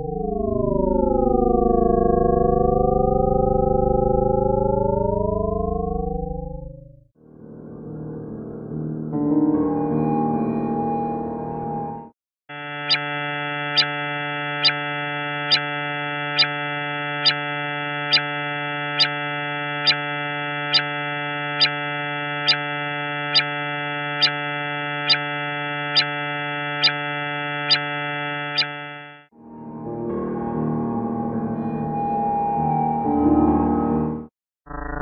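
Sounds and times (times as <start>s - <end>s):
buzzy synthetic drone: 0.0s - 6.7s, 12.5s - 35.0s.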